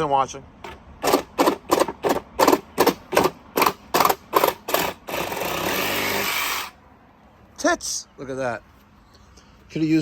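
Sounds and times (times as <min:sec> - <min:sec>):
reciprocating saw cutting: 0:01.0 - 0:06.8.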